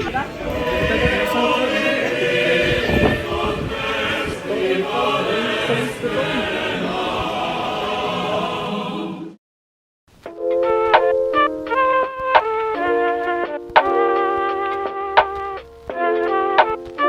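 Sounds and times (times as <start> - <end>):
choir chanting held notes: 0.0 - 9.4.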